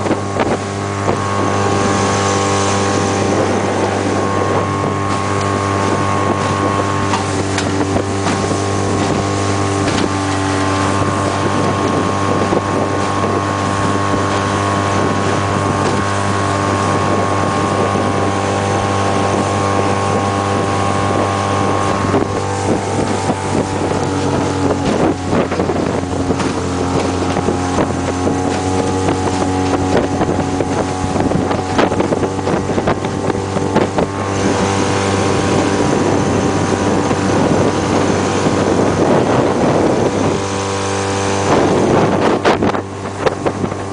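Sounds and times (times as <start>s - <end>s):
outboard motor running: 0.0s - 43.9s
wind buffeting microphone: 0.0s - 43.9s.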